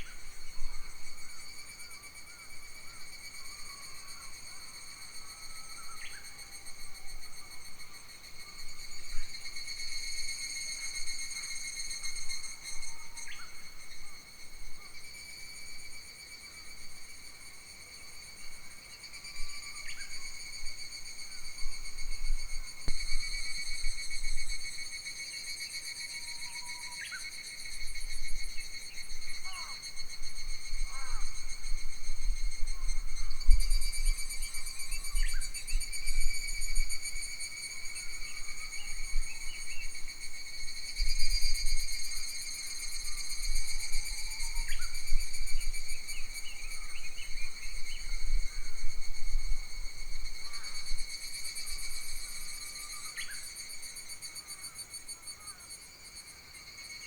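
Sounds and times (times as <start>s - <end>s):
insects chirring: 0.0s - 57.0s
wind rumble on microphone: 28.0s - 42.4s, 43.0s - 52.5s.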